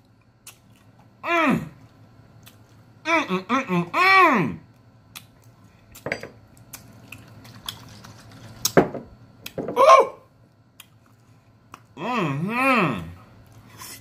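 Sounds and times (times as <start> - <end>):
person humming mm: 1.2 - 1.8, 12.0 - 13.2
mouth clicks and smacks: 10.7 - 11.0.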